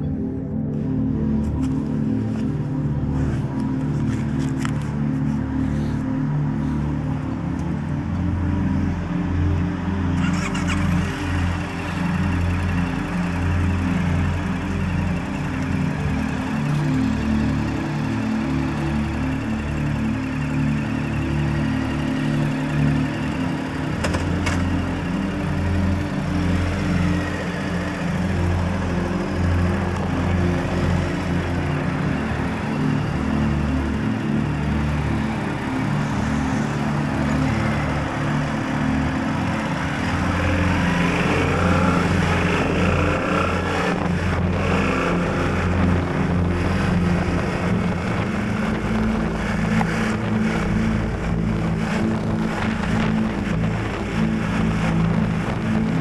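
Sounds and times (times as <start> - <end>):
background music with bass line: 0.0 - 56.0
motorcycle engine revving: 10.0 - 56.0
wind noise on microphone: 39.3 - 56.0.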